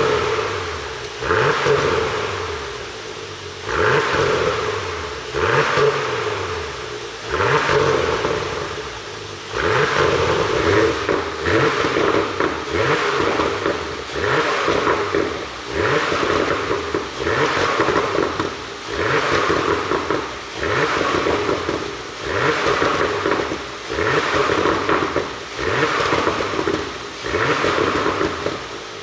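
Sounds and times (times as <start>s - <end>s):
car engine revving: 0.0s - 11.1s
exhaust crackles and pops: 0.0s - 11.1s.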